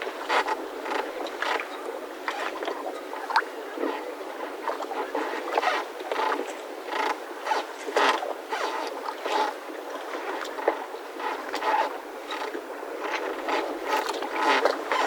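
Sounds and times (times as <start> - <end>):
mooring ropes creaking: 5.5 - 9.6, 10.6 - 15.0.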